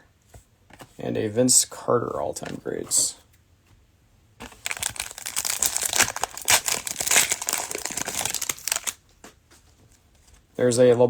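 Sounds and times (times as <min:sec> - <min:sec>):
plastic wrapper crinkling: 0:04.4 - 0:09.0.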